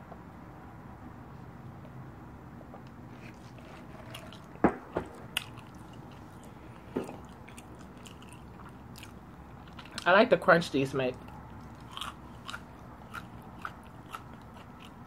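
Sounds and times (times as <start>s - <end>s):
low steady hum: 0.0s - 15.0s
chewing clicks and smacks: 3.3s - 10.1s, 11.2s - 15.0s.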